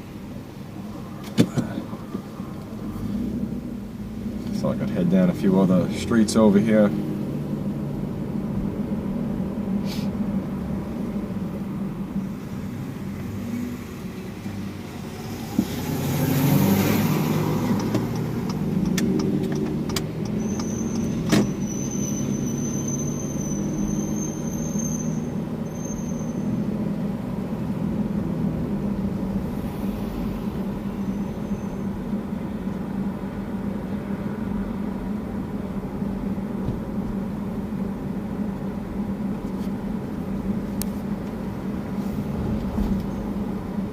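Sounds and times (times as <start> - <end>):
car engine and road hum: 0.0 - 43.9
sharp clicks: 17.7 - 21.4.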